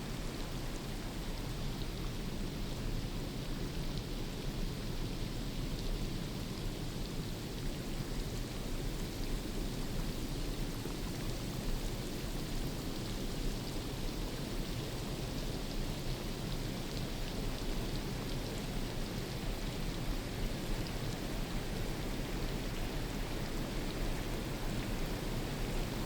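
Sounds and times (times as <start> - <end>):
rain on foliage: 0.0 - 26.0.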